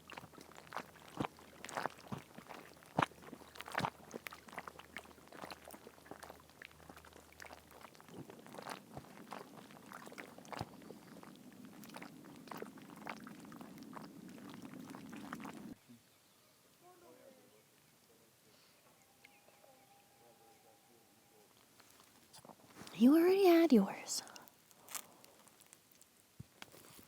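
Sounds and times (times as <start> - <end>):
oil spitting and crackling: 0.0 - 15.8, 24.3 - 27.0.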